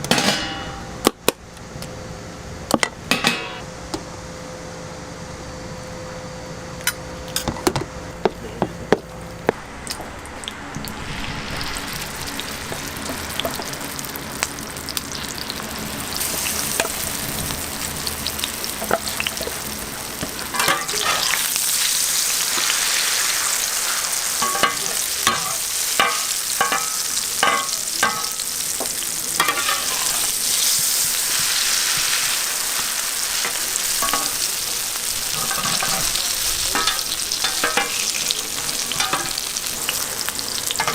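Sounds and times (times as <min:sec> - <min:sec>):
pancake sizzling in oil: 0:10.8 - 0:40.9
spatula scraping metal pan: 0:20.6 - 0:21.4.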